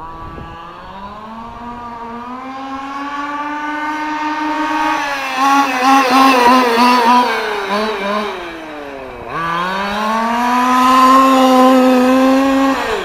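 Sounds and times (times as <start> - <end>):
rc truck engine running flat out: 5.0 - 13.0.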